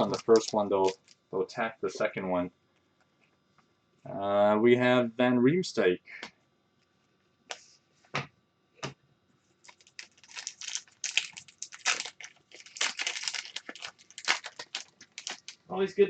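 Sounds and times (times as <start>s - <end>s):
card pack crinkling and rustling: 0.0s - 1.3s, 9.6s - 15.7s.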